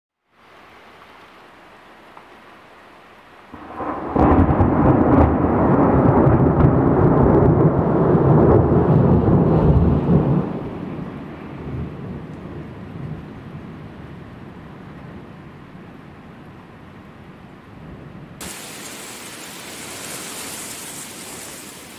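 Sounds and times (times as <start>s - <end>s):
heavy rain: 0.2s - 21.9s
thunder rumbling: 3.5s - 15.6s, 17.8s - 21.9s.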